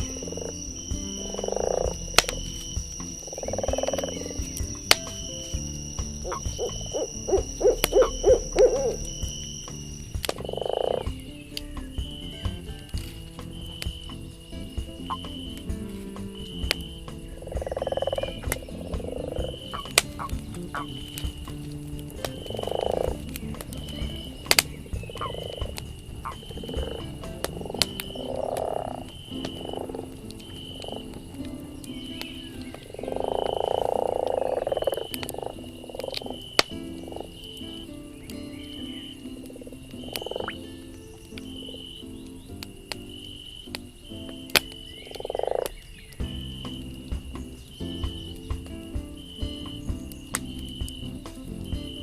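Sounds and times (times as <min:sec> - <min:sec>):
thin high tone: 0:00.0 - 0:11.1
owl hooting: 0:00.0 - 0:12.9, 0:16.6 - 0:31.1
campfire crackling: 0:00.0 - 0:52.0
fire popping: 0:00.0 - 0:52.0
frogs croaking: 0:00.0 - 0:52.0.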